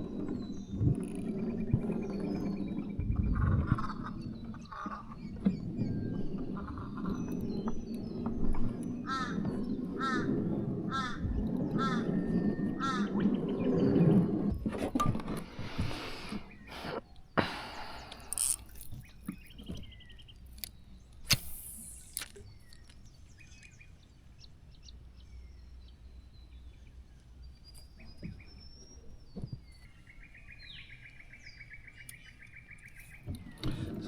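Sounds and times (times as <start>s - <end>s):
wild birds calling: 0.0s - 27.0s.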